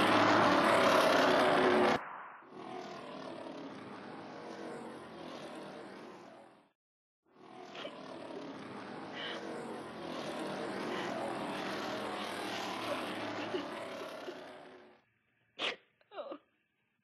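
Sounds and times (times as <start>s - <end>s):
droning rushing sound effect: 0.0s - 6.4s.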